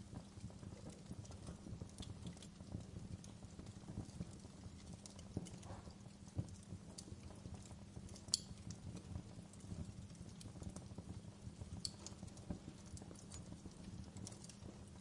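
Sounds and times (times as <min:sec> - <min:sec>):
wood fire crackling: 0:00.0 - 0:15.0
sharp fire pops: 0:05.0 - 0:08.9, 0:11.6 - 0:15.0.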